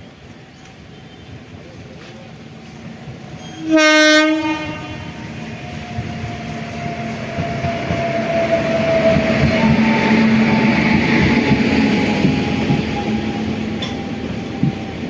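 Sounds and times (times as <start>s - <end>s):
approaching train rumble: 0.0s - 15.0s
train horn blast: 3.4s - 5.4s.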